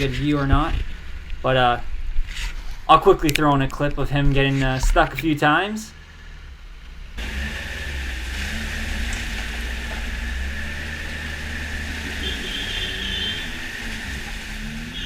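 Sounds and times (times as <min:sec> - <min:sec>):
snowmobile engine running: 0:07.2 - 0:15.0.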